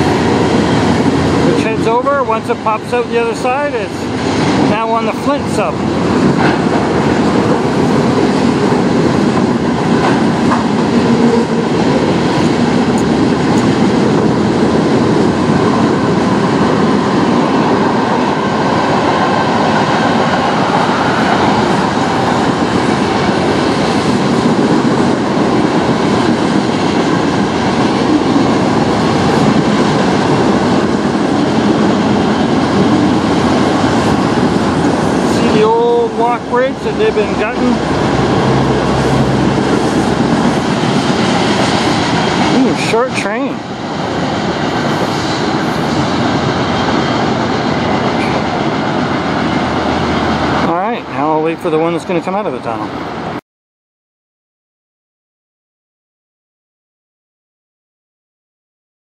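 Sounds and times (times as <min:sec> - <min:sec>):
freight train wheels clattering: 0:05.3 - 0:35.7.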